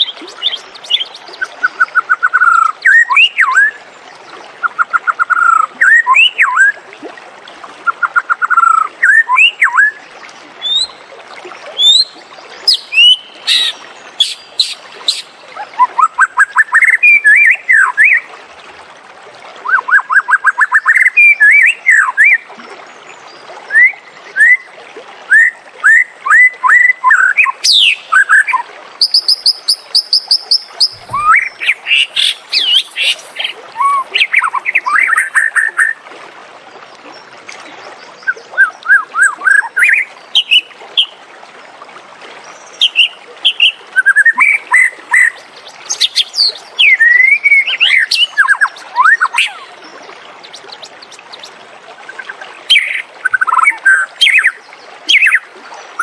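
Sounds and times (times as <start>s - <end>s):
bird singing whistled song: 0.0s - 3.8s, 4.7s - 6.8s, 8.0s - 10.0s, 10.6s - 11.0s, 11.8s - 18.2s, 19.6s - 22.4s, 23.7s - 24.7s, 25.3s - 36.0s, 38.2s - 41.1s, 42.8s - 49.7s.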